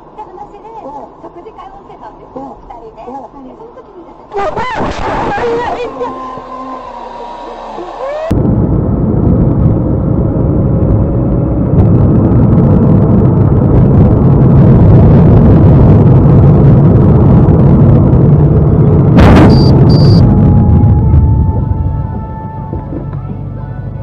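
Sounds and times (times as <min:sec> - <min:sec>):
car driving rumble: 0:00.9 - 0:24.0
steady tone: 0:04.3 - 0:22.9
sharp bang: 0:19.2 - 0:20.2
short high beeps: 0:19.4 - 0:20.2.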